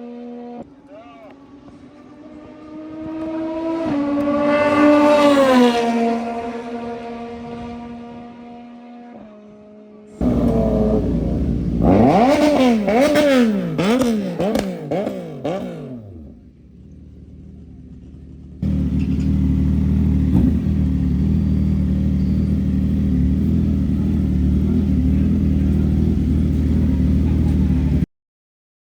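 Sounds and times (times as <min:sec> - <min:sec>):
motorcycle engine revving: 0:01.4 - 0:09.0, 0:10.2 - 0:28.1
motorcycle engine idling: 0:10.2 - 0:28.0.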